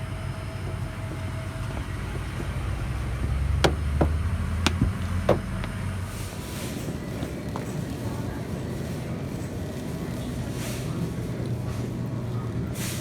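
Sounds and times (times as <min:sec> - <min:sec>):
engine rumbling: 0:00.0 - 0:12.7
sharp knocks: 0:03.2 - 0:05.9.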